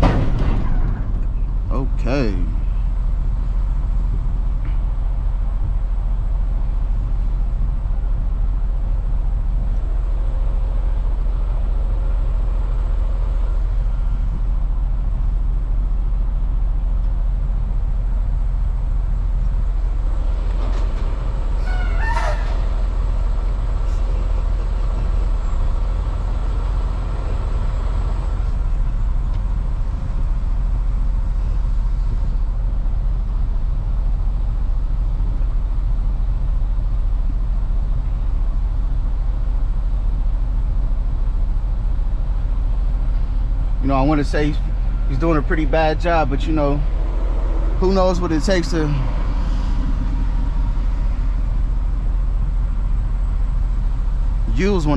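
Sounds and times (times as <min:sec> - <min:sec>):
diesel engines idling: 0:00.0 - 0:54.9
wavering squeal: 0:21.6 - 0:23.0.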